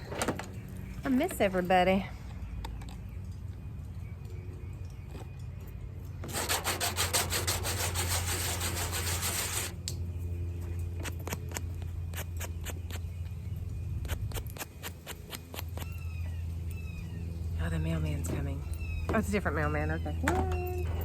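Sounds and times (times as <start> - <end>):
steady low hum: 0.0 - 21.0
sandpaper rubbing back and forth: 6.3 - 9.8.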